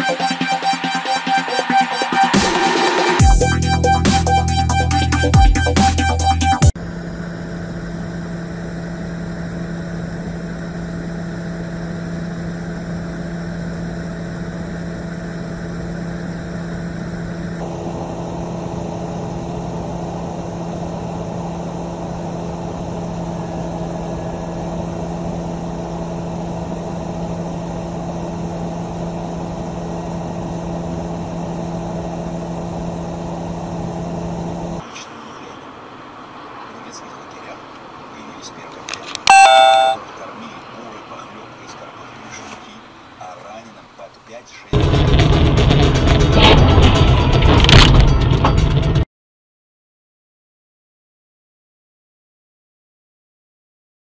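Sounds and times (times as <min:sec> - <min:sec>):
vehicle engine hum: 0:06.6 - 0:39.3, 0:40.0 - 0:44.0.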